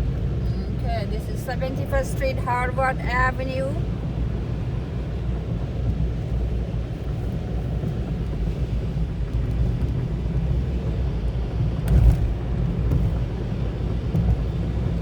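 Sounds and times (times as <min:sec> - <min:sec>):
car engine and tyre rumble: 0:00.0 - 0:15.0
car bump: 0:11.6 - 0:15.0.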